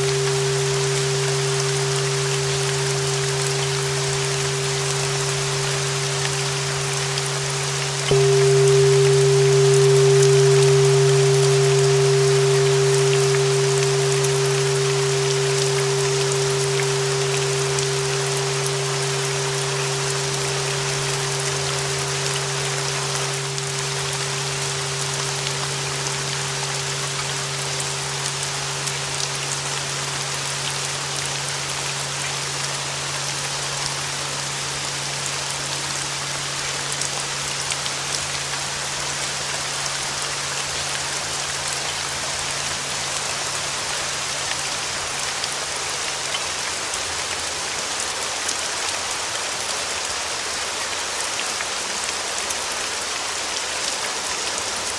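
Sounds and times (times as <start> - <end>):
held bell tone: 0.0 - 32.6
lower held tone: 0.0 - 37.6
steady rain: 0.0 - 54.9.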